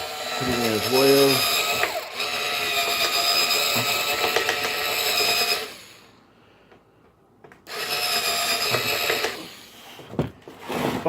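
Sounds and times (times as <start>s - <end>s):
small power drill whining: 0.0s - 6.2s, 7.6s - 10.1s.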